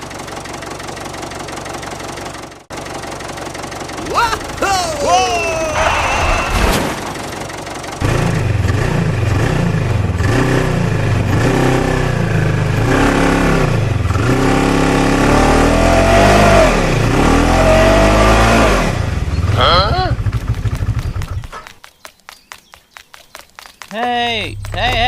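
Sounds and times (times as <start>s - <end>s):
small tractor engine revving: 2.8s - 21.5s.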